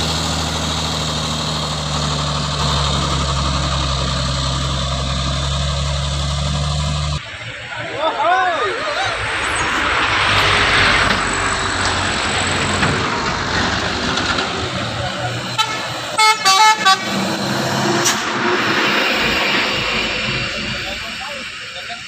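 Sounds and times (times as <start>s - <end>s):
engine and road noise: 0.0s - 22.0s
vehicle horn blasts: 15.6s - 17.2s.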